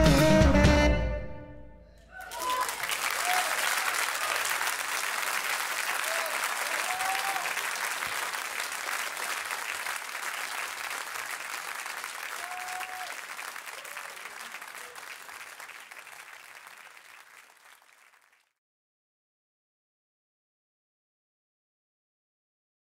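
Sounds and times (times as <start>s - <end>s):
faint whistles or shouts: 2.0s - 4.5s, 12.3s - 15.2s
audience applauding: 2.1s - 18.5s.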